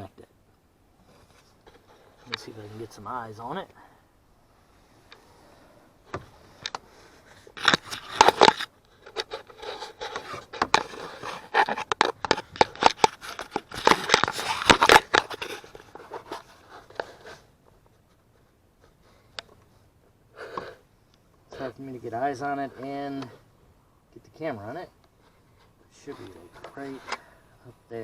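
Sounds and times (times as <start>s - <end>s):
hands working among plastic trim: 6.1s - 19.7s.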